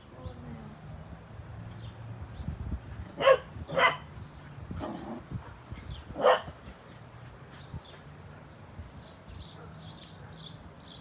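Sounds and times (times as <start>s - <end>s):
puppy barking: 3.2s - 4.0s, 6.2s - 6.5s.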